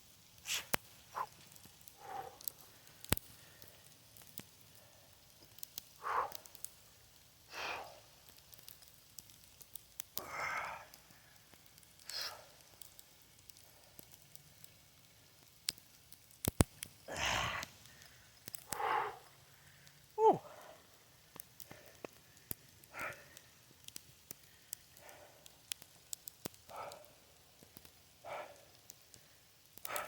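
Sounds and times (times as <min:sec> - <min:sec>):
man breathing hard: 0:00.5 - 0:04.0, 0:06.0 - 0:06.6, 0:07.4 - 0:08.2, 0:10.2 - 0:12.8, 0:17.0 - 0:21.0, 0:21.6 - 0:23.7, 0:24.3 - 0:25.7, 0:26.7 - 0:27.4, 0:28.2 - 0:28.9.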